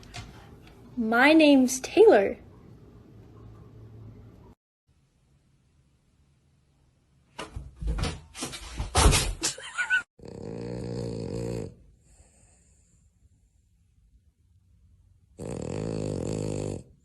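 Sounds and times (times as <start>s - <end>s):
loud knocks and clatters: 7.4s - 9.5s
animal snoring: 10.2s - 12.6s, 15.4s - 17.0s.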